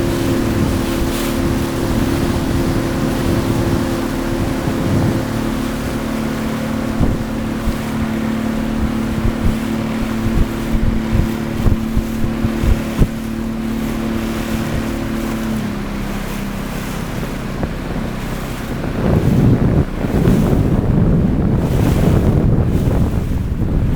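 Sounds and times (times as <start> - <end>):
boat engine running: 0.0 - 23.9
wind buffeting microphone: 0.0 - 23.9.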